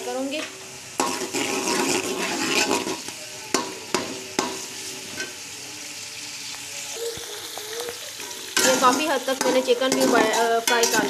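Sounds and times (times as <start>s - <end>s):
food sizzling in a pot: 0.0s - 11.0s
metal spoon clinking on pot: 8.6s - 11.0s.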